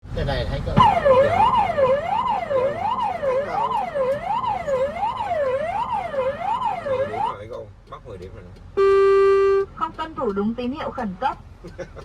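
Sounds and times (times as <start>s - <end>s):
electronic siren sweeping up and down: 0.8s - 7.4s.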